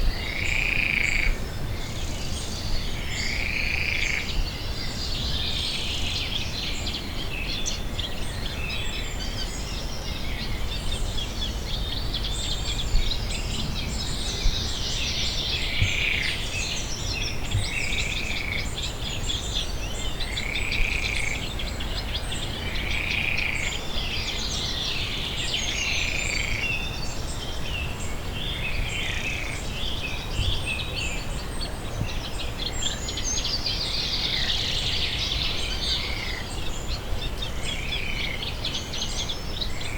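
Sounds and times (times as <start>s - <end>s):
steady low rumble: 11.8s - 16.2s.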